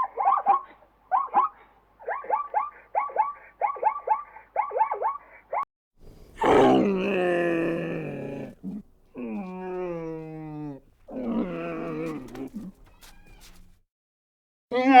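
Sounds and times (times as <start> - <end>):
farm animal calling: 6.0 - 13.8.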